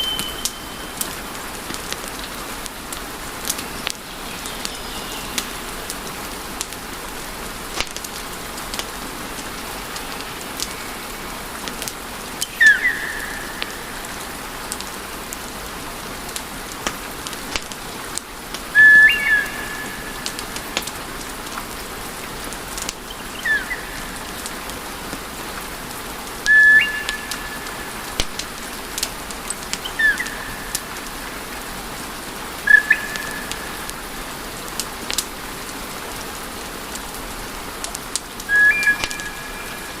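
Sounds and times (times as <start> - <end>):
short high whistle: 0.0 - 1.0
wood fire crackling: 6.6 - 15.7, 16.3 - 35.4.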